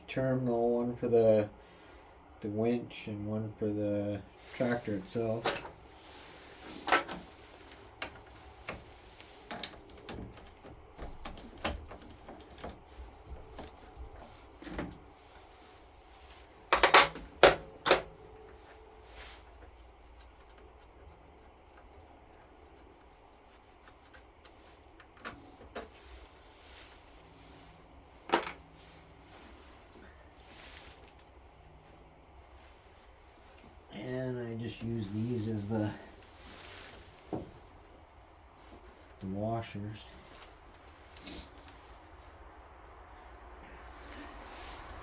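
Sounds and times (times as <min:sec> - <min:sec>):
clicks and knocks of hand work: 0:06.8 - 0:15.1, 0:16.7 - 0:18.6.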